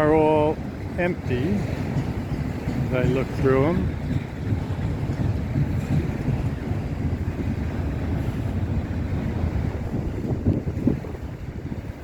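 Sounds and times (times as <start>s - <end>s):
freight train rolling past: 0.0s - 12.0s.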